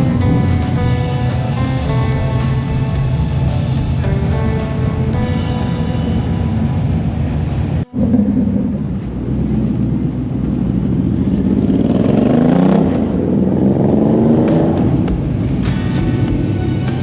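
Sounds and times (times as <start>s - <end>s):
background music: 0.0s - 8.6s, 14.4s - 17.0s
car engine accelerating: 0.0s - 17.0s.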